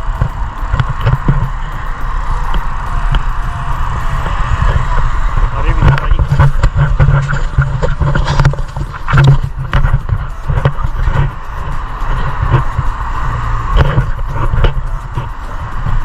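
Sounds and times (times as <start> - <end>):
bike riding rumble: 0.0 - 16.0
knocks and rattles: 4.2 - 13.0.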